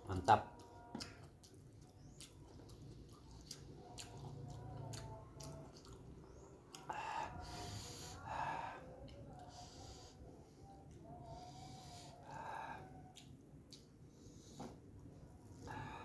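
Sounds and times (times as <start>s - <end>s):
wet chewing and mouth smacks: 0.6s - 7.0s, 13.0s - 15.8s
person breathing: 6.9s - 13.1s, 15.6s - 16.0s.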